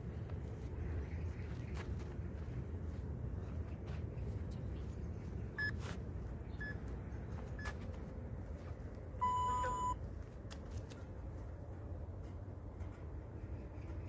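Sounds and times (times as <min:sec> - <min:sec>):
long low timer beep: 0:09.2 - 0:10.0
short high timer beeps: 0:09.2 - 0:10.0.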